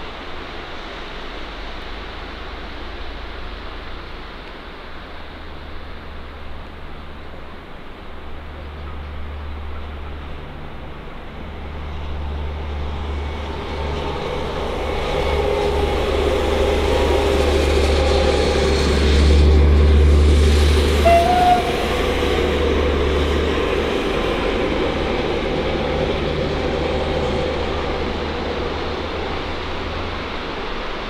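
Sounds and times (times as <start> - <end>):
passenger train passing: 0.0 - 31.0
brief high tone: 21.0 - 21.8.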